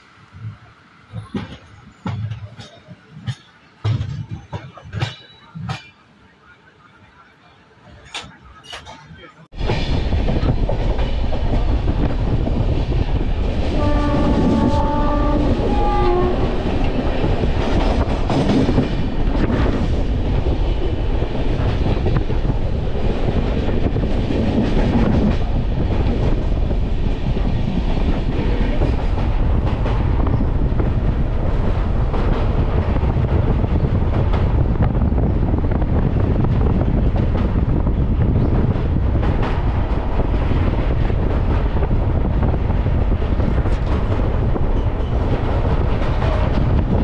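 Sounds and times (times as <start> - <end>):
train running on rails: 0.0 - 47.0
train horn: 13.7 - 16.8.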